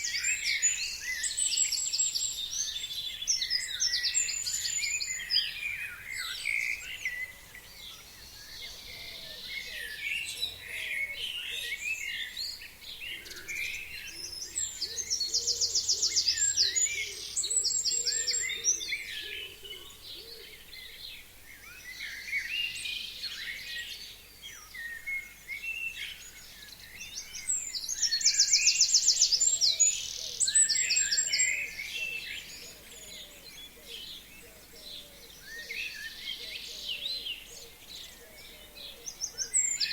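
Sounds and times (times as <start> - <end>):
songbirds chirping and whistling: 0.0 - 39.9.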